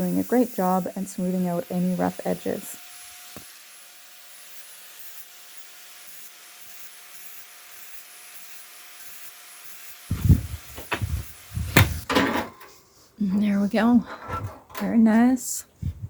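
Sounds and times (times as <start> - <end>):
heavy clunks: 10.1 - 12.7, 14.0 - 14.9
rasping on metal grate: 13.5 - 15.0.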